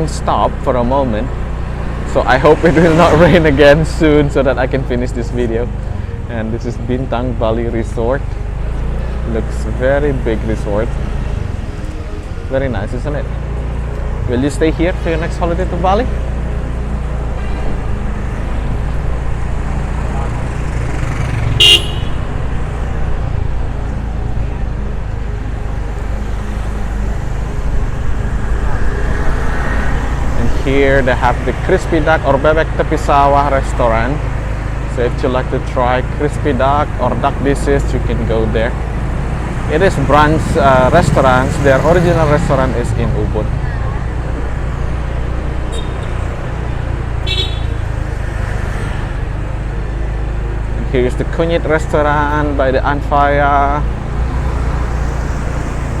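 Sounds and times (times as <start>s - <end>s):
car driving rumble: 0.0s - 56.0s
road noise: 0.0s - 56.0s
motorbike engine running: 20.2s - 22.3s.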